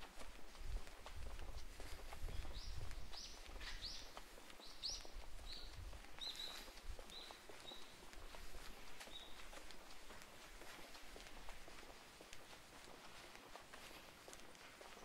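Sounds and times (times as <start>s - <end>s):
footsteps: 0.0s - 15.0s
small bird chirping: 2.3s - 8.0s, 9.0s - 9.5s.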